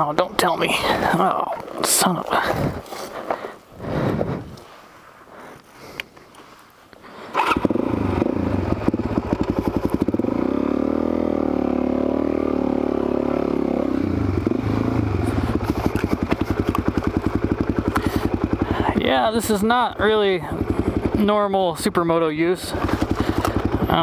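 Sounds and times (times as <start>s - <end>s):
motorcycle engine starting and revving: 7.2s - 24.0s.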